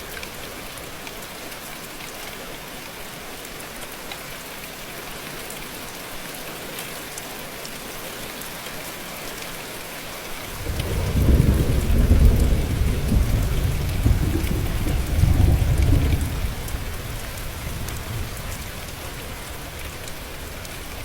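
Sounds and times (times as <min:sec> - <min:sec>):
steady rain falling: 0:00.0 - 0:21.0
low rumble of thunder: 0:10.5 - 0:21.0.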